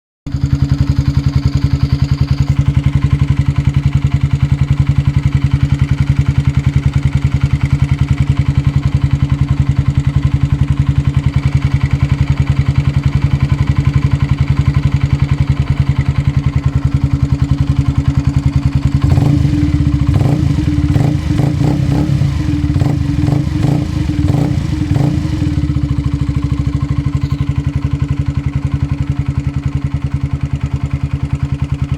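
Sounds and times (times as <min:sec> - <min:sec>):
motorcycle engine idling: 0:00.3 - 0:31.9
short irregular engine bursts: 0:19.0 - 0:28.2.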